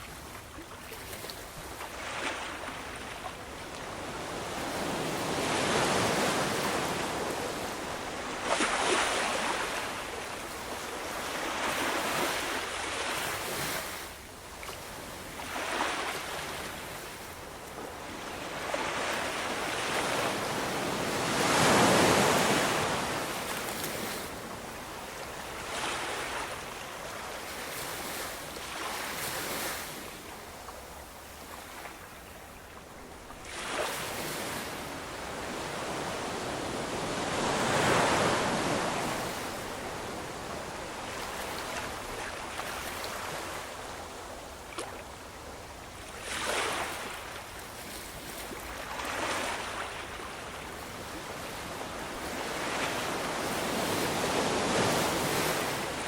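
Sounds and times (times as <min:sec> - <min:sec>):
ocean waves breaking: 0:02.0 - 0:10.3, 0:18.4 - 0:24.4, 0:33.4 - 0:43.6, 0:52.1 - 0:56.0.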